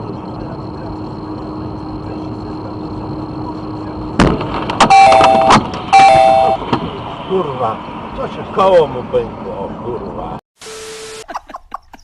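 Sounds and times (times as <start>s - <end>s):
road noise inside moving car: 0.0s - 10.4s
sudden sharp bang: 4.2s - 7.0s
long car horn blasts: 4.9s - 6.7s.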